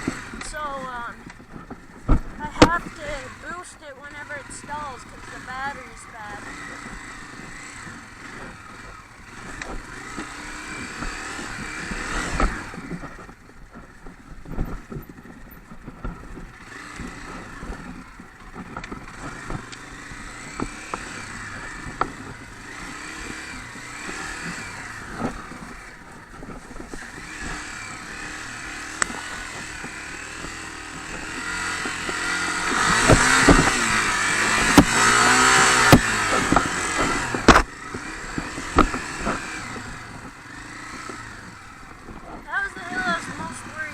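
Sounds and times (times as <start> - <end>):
dirt bike engine revving: 0.0 - 43.9
sharp clicks and knocks: 31.8 - 37.7.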